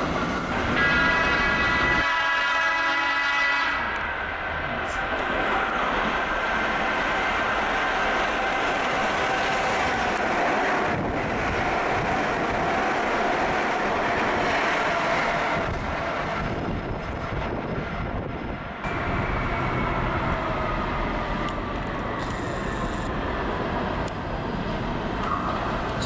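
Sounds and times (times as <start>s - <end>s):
train wheels rolling on rails: 0.0s - 2.6s, 3.8s - 26.0s
distant train approaching: 0.0s - 26.0s.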